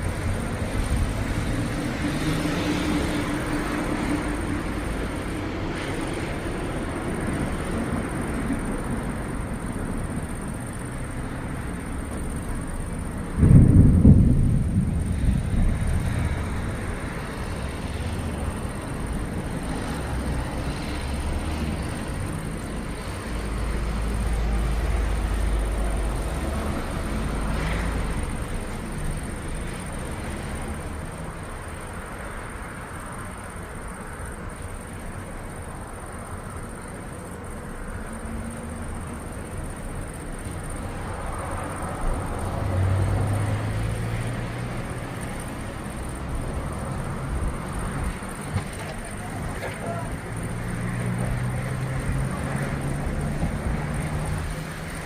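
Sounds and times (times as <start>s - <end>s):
thunder rumbling: 12.2s - 19.8s
loud thunder clap: 13.4s - 16.0s.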